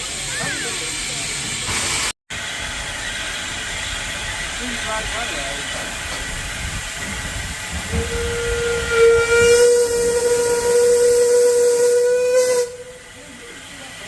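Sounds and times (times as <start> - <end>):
steam hissing: 0.0 - 14.0
steam whistle: 7.9 - 13.0.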